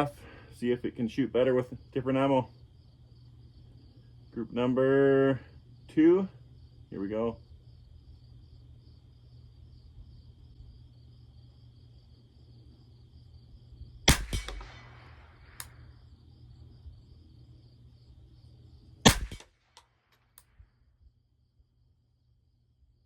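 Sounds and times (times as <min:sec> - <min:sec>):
rifle shots: 0:14.1 - 0:15.8, 0:19.0 - 0:19.9.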